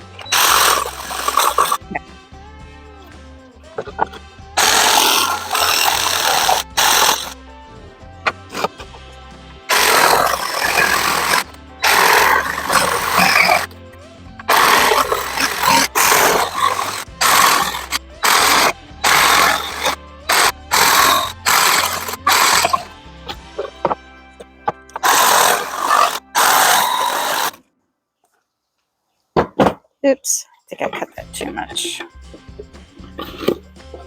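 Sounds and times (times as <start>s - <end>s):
background music: 0.0s - 27.7s, 30.0s - 34.0s
jigsaw cutting wood: 0.1s - 1.8s, 4.6s - 7.4s, 9.7s - 13.7s, 14.5s - 22.9s, 25.0s - 27.6s.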